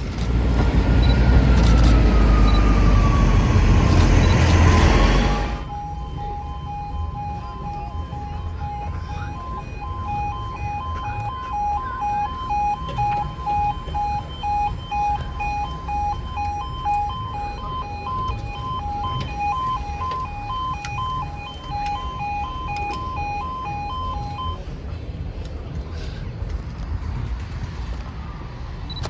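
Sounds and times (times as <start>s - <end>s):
low rumble: 0.0s - 8.8s
level crossing alarm two-tone: 1.0s - 24.6s.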